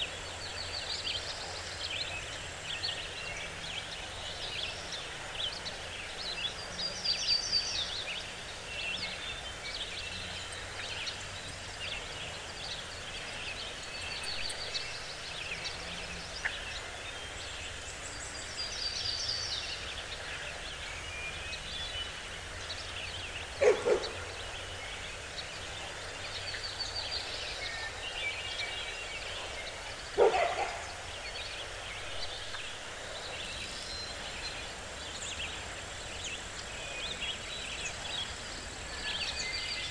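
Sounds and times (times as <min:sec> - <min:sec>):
outdoor background hiss: 0:00.0 - 0:39.9
birds chirping and singing: 0:22.8 - 0:24.6, 0:29.6 - 0:32.3, 0:33.4 - 0:39.9.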